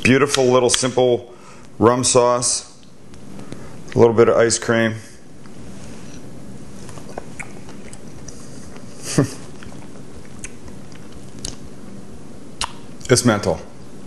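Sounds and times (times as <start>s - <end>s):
man chewing: 6.9s - 11.6s.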